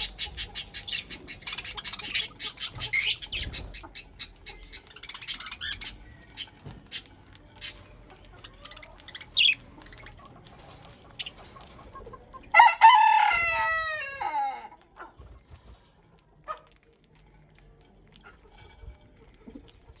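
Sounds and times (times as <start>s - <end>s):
bird chirps: 0.0s - 10.2s
rooster crowing: 12.5s - 14.7s.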